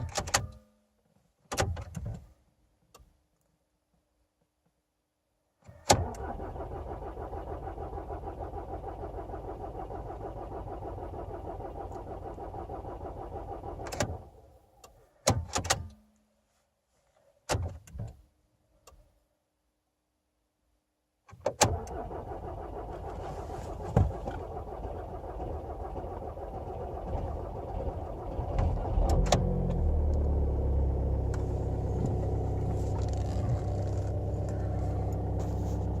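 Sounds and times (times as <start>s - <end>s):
engine cranking on starter: 5.9s - 14.3s, 21.6s - 36.0s
diesel engine running: 22.5s - 36.0s.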